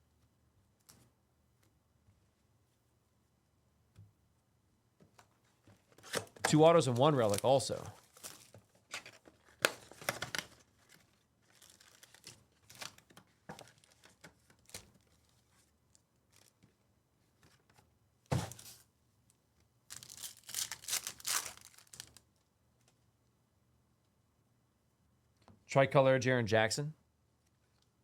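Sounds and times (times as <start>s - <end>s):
wrappers tearing and crinkling: 6.0s - 15.3s, 16.3s - 16.6s, 19.9s - 22.2s.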